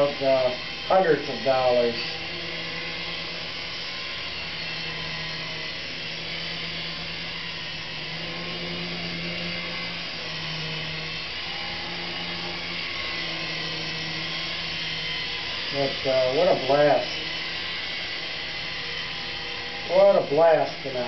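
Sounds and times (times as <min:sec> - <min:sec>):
rc helicopter rotors whirring: 0:00.0 - 0:21.0.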